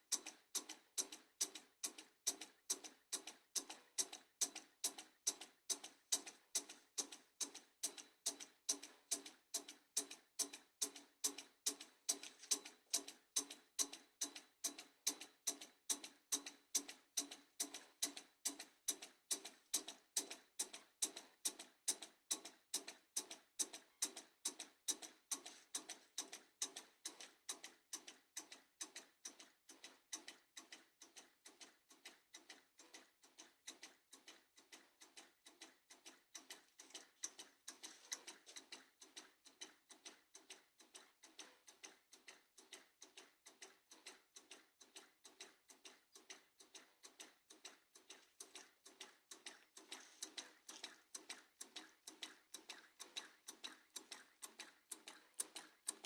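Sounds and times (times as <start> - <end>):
small engine ticking: 0.0 - 56.0.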